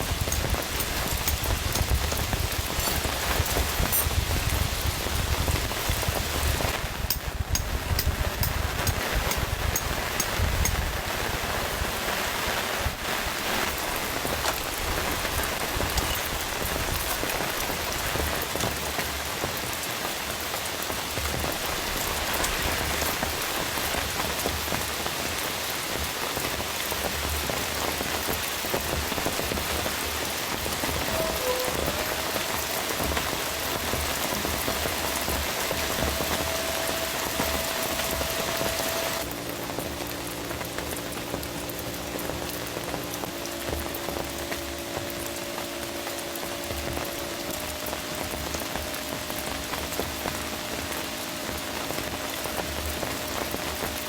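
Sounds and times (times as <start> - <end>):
heavy rain on a tent: 0.0 - 54.0
faint steady hum: 30.2 - 54.0.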